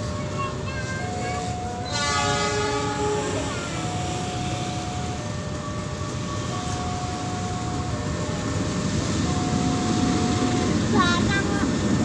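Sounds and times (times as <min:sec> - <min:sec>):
freight train rumbling: 0:00.0 - 0:12.0
two-pitch alternating tone: 0:02.7 - 0:11.1.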